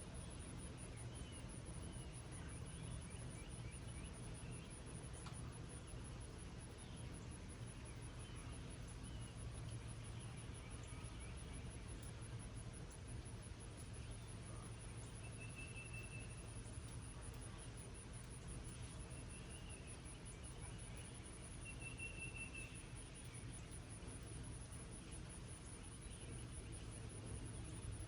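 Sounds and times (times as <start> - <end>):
birds chirping faintly: 0.0 - 28.0
gentle rain hiss: 0.0 - 28.0
low steady hum: 0.0 - 28.0
insect high-pitched trill: 6.8 - 28.0.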